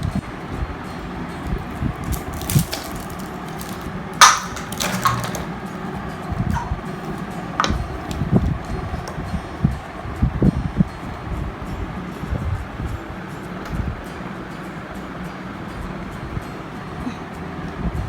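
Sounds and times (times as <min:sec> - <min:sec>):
toys and packaging knocking: 0:02.0 - 0:05.7, 0:06.5 - 0:08.5.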